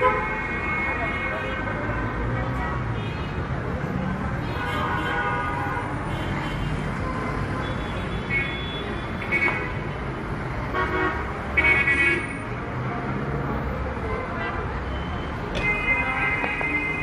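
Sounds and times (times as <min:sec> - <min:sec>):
traffic engines rumbling: 0:00.0 - 0:17.0
car horns honking: 0:15.5 - 0:17.0.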